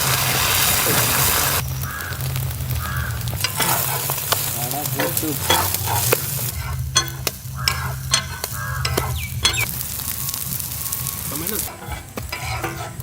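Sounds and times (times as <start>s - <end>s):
curry sizzling in a pan: 0.0s - 13.0s
utensil knocking against pan: 4.9s - 9.7s.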